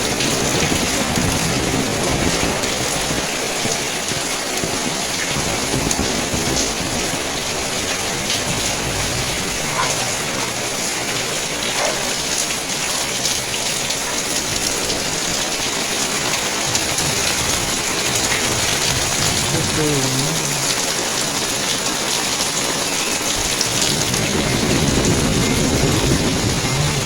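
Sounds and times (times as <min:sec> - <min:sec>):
heavy rain: 0:00.0 - 0:27.0
water dripping: 0:00.0 - 0:27.0.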